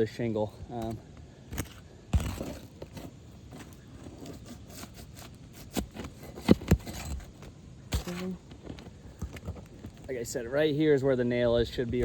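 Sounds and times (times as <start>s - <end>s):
tool scraping roof shingles: 1.5s - 10.1s.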